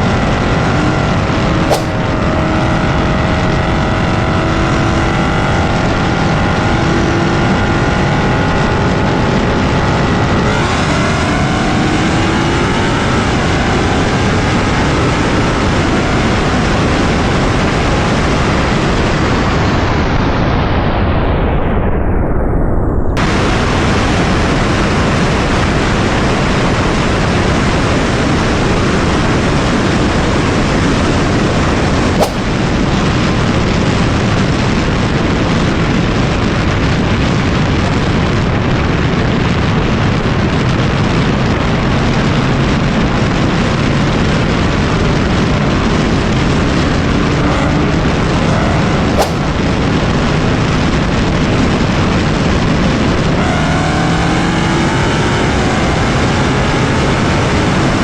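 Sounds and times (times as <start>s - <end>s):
car engine revving: 0.0s - 17.7s, 53.2s - 58.0s.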